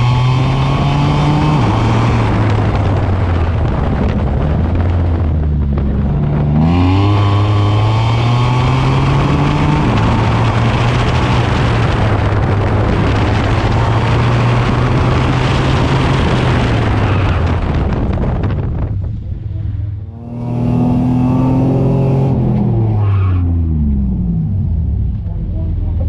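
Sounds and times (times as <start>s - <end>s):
loud rushing noise: 0.0s - 24.4s
car engine under load: 0.0s - 26.0s.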